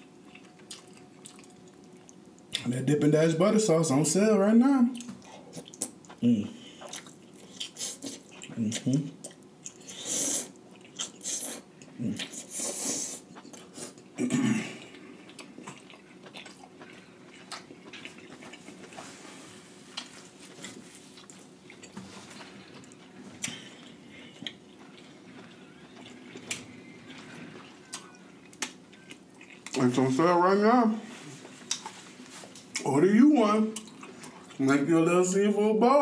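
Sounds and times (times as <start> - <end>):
person chewing and lip-smacking: 0.2 - 2.6, 5.0 - 14.2, 14.8 - 19.1, 19.9 - 29.8, 31.6 - 32.9, 33.7 - 34.8.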